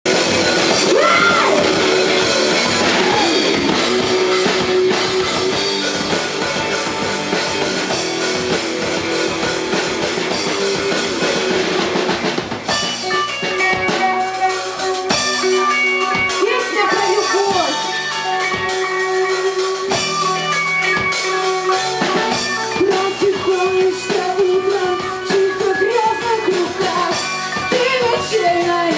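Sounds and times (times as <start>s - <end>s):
rock band playing: 0.0s - 28.9s
drum hits: 0.1s - 14.2s.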